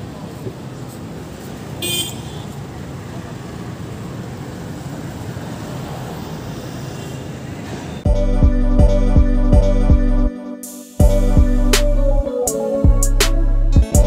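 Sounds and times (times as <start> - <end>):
traffic noise: 0.0 - 8.2.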